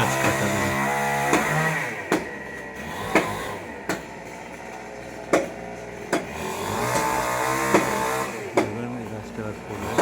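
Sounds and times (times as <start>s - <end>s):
knife chopping wood: 1.2s - 2.4s, 3.1s - 4.1s, 5.3s - 8.8s.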